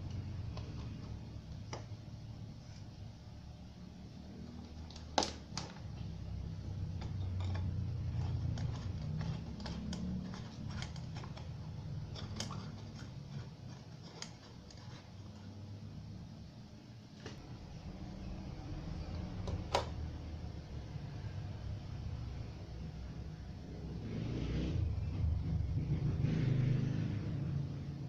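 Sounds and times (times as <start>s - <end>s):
steady low hum: 0.0s - 26.2s.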